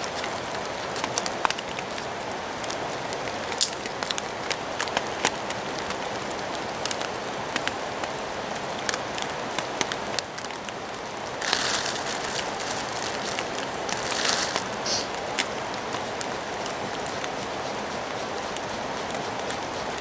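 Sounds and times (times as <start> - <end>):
steady rain falling: 0.0 - 20.0
hissing rustle: 11.1 - 20.0.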